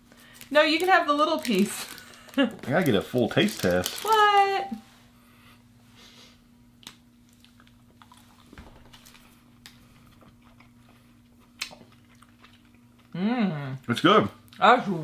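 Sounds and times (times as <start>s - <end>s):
steady low hum: 0.0s - 15.0s
chewing caramel bar: 7.2s - 13.2s.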